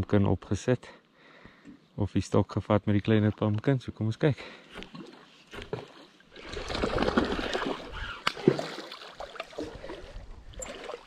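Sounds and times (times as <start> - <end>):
fish thrashing and splashing water: 4.9 - 11.0.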